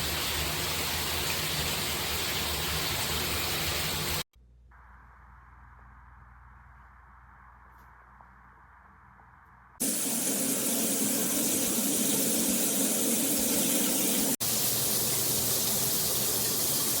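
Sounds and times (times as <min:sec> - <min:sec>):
shower head spraying water: 0:09.8 - 0:17.0.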